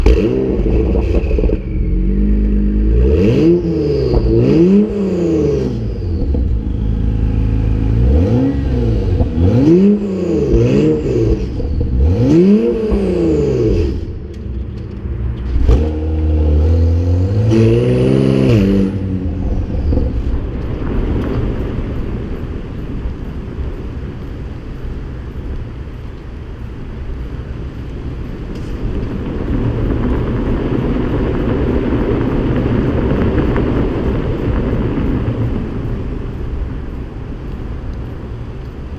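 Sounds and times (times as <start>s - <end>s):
car engine revving and idling: 0.0s - 25.8s.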